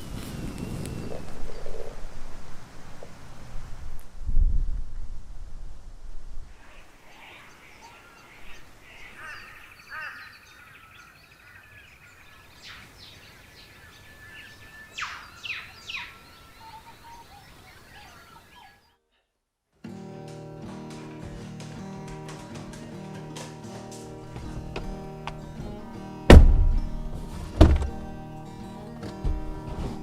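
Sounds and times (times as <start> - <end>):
birds chirping: 6.6 - 19.0, 19.9 - 30.0.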